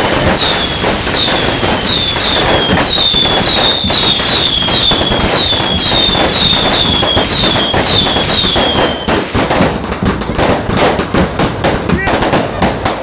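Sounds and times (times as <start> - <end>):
firework whistles: 0.0 - 9.7
fireworks crackling and popping: 0.0 - 13.0.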